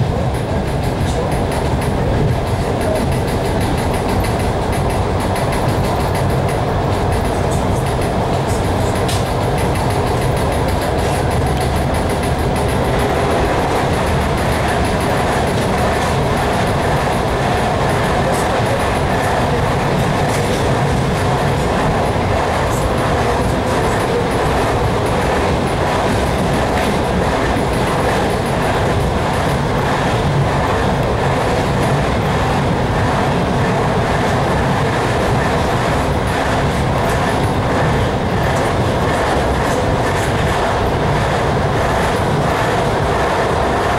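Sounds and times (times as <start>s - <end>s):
passing train: 0.0s - 43.9s
train rumble and rail noise: 0.0s - 43.9s
wheels clicking over rail joints: 0.1s - 43.9s.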